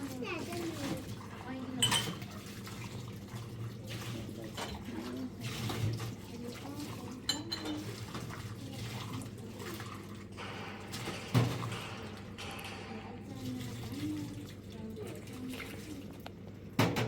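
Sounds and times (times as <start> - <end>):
dishes clinking: 1.8 - 2.3, 7.2 - 7.9, 10.4 - 13.9.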